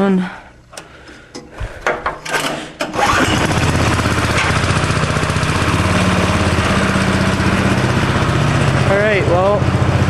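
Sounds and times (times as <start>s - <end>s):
go-kart engine cranking and running: 2.2s - 10.0s.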